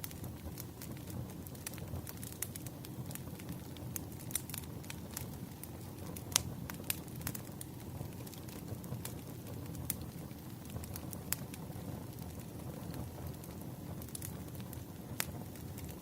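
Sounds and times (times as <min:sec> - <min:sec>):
low rumble of burning logs: 0:00.0 - 0:16.0
wood fire crackling and popping: 0:00.0 - 0:16.0.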